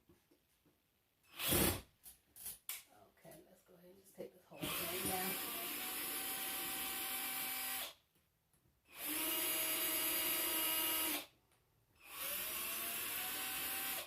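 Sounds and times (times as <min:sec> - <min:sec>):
power drill driving screw: 0:01.3 - 0:01.9, 0:04.6 - 0:08.0, 0:08.9 - 0:11.3, 0:12.0 - 0:14.0.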